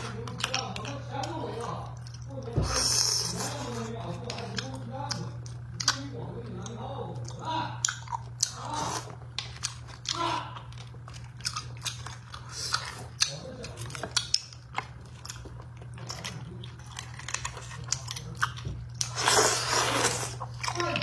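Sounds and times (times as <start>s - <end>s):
wet mouth chewing: 0.0s - 21.0s.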